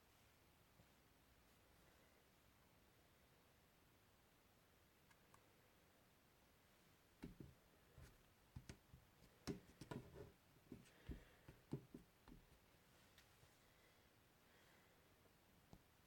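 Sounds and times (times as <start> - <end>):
soft clicks and knocks: 7.2 - 12.5.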